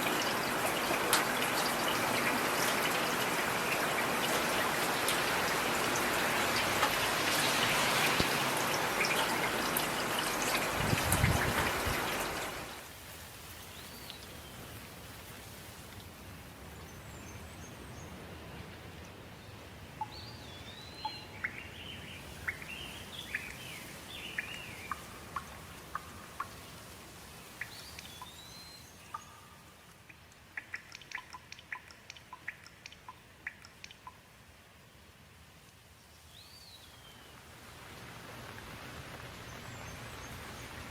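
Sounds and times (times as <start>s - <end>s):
water drips: 0.0s - 12.8s, 13.5s - 16.2s, 20.0s - 34.6s
light rain: 0.0s - 40.9s.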